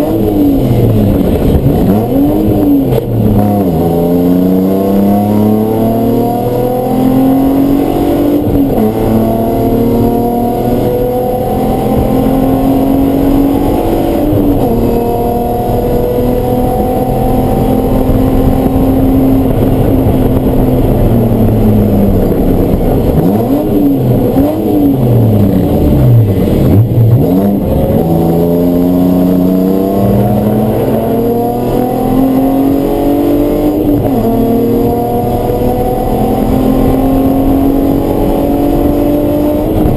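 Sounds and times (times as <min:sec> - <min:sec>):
race car engine revving through gears: 0:00.0 - 0:39.9.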